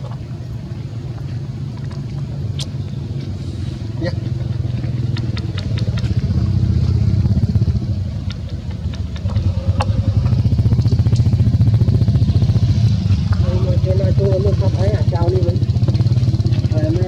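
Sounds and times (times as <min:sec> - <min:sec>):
small engine throbbing: 0:00.0 - 0:17.0
faint clicks: 0:04.2 - 0:13.5.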